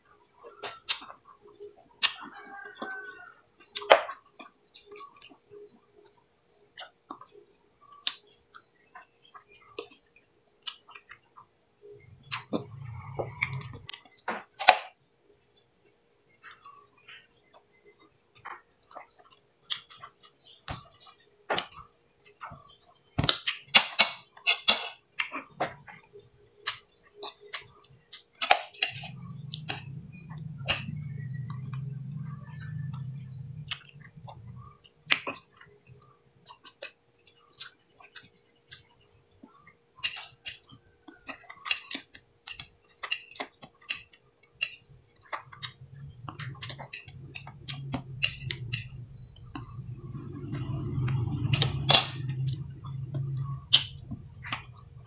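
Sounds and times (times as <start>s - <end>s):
low steady hum: 0.0s - 23.8s, 25.2s - 55.0s
wet sucking and chewing: 28.8s - 35.8s, 40.0s - 54.8s.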